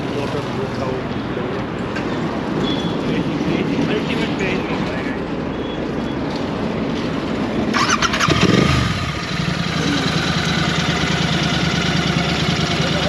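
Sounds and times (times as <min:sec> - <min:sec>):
motorcycle engine starting and idling: 0:07.2 - 0:13.0.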